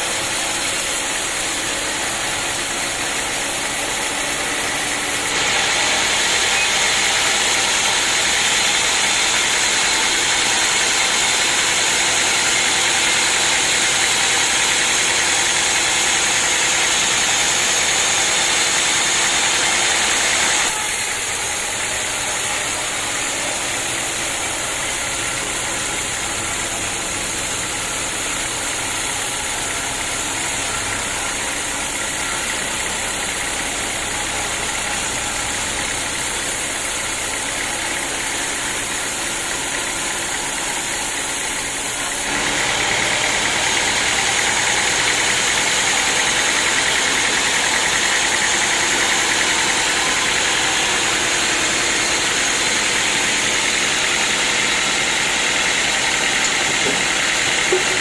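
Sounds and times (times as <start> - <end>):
saw cutting through log: 0.0 - 58.0
sawmill machinery running: 0.0 - 58.0.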